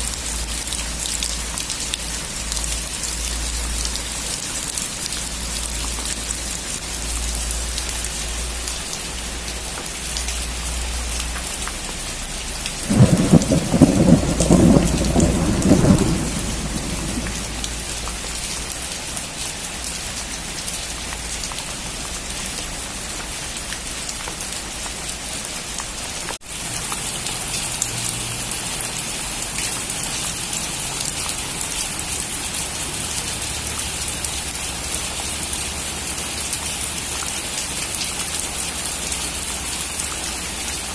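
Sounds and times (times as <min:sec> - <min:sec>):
heavy rain hissing: 0:00.1 - 0:21.2
thunderclap crackling and rumbling: 0:12.8 - 0:18.7.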